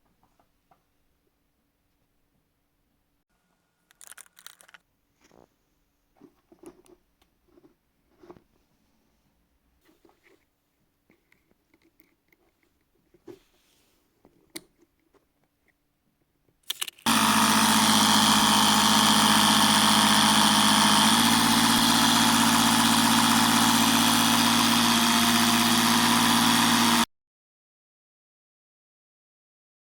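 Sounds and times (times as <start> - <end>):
air compressor motor humming: 17.1 - 27.1.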